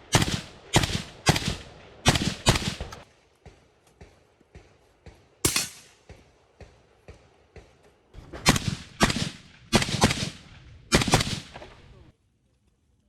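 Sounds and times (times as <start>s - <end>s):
suppressed rifle shots: 0.1s - 3.0s, 8.4s - 11.8s.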